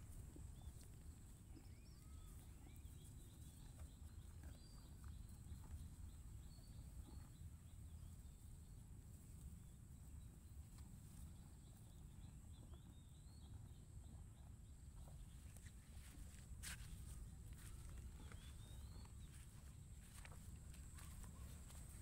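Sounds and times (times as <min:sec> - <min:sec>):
small bird chirping: 0:00.0 - 0:08.9, 0:09.5 - 0:22.0
faint low wind rumble: 0:00.0 - 0:22.0.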